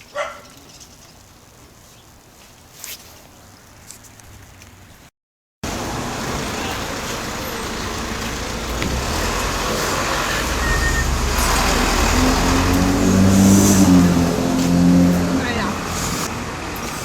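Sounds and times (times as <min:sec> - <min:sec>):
car road and engine noise: 0:03.4 - 0:17.0.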